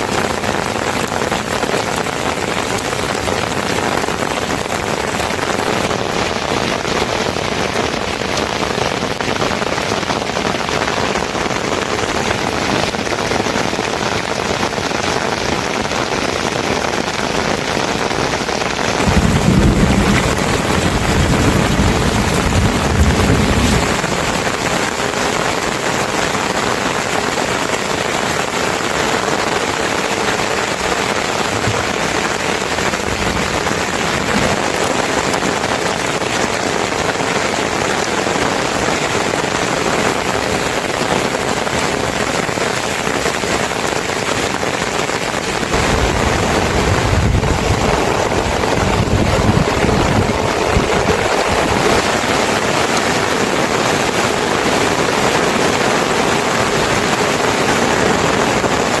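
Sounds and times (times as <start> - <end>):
heavy rain: 0.0 - 59.0
low rumble: 19.0 - 24.7.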